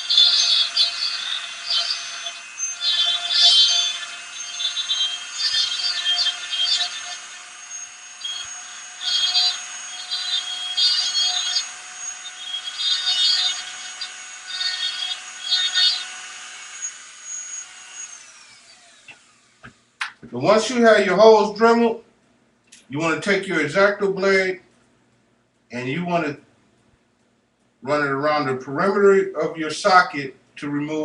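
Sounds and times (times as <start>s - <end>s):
rotary tool grinding plastic: 0.0s - 19.9s
rotary tool whining: 0.0s - 21.5s.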